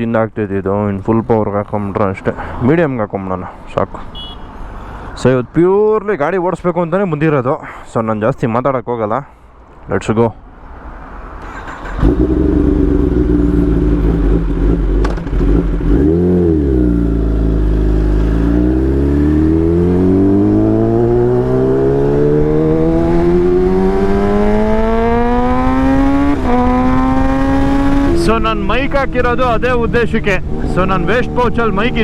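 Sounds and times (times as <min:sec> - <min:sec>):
motorcycle engine revving: 0:11.4 - 0:32.0.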